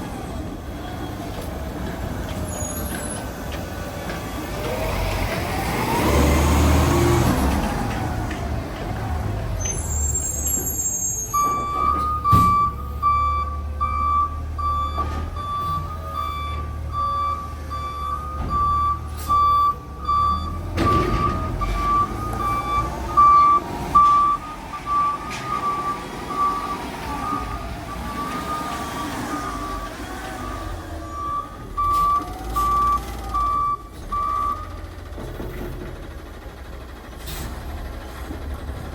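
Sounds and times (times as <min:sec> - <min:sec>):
truck backup alarm beeping: 0:09.2 - 0:35.2.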